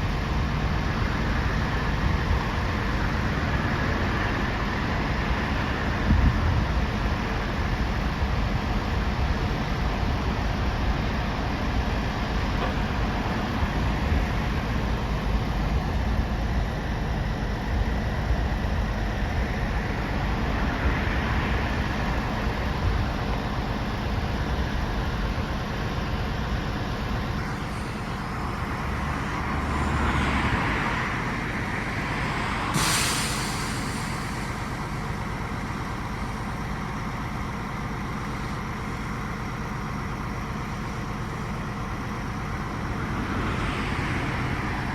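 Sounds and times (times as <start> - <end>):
truck engine running: 0.0 - 44.9
sharp hiss of air: 27.4 - 36.5.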